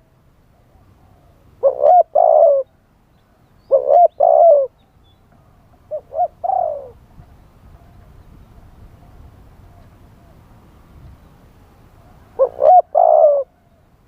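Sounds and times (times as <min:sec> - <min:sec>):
dove cooing: 0:00.6 - 0:02.7, 0:03.7 - 0:04.8, 0:05.8 - 0:10.5, 0:12.0 - 0:13.9.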